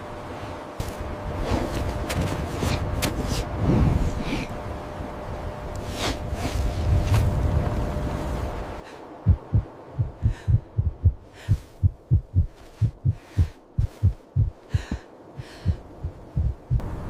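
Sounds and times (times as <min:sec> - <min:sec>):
heartbeat thumps: 0:09.2 - 0:16.9.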